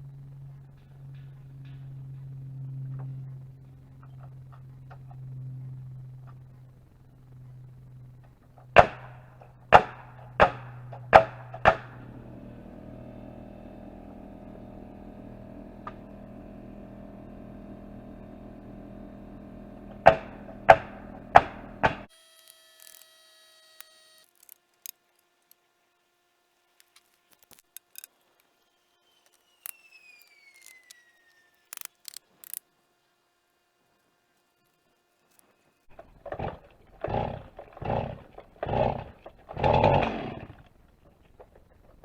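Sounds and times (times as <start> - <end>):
hammer blows on wooden framing: 20.0 - 22.1
hand saw cutting wood: 20.1 - 25.6, 31.6 - 32.6
faint clicks: 22.4 - 25.6, 26.8 - 28.6, 29.2 - 32.7.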